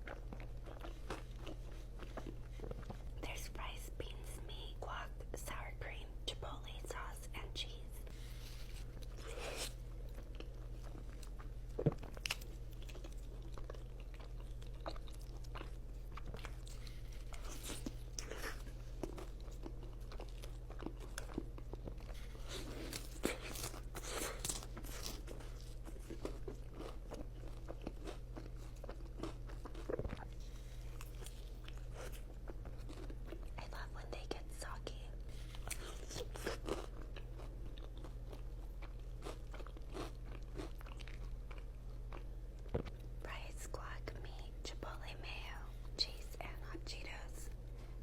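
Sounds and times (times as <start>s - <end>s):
person chewing food: 0.0s - 3.2s, 8.0s - 33.8s, 35.3s - 43.2s
low electrical hum: 0.0s - 48.0s.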